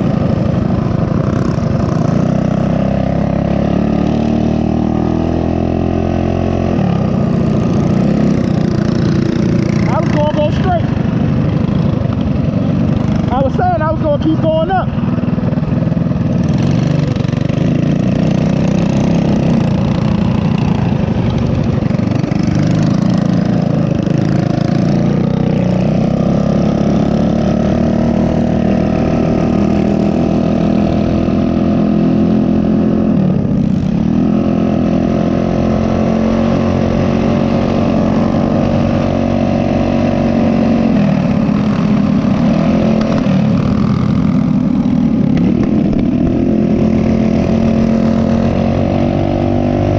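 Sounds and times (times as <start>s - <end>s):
mini bike engine running: 0.0s - 49.9s.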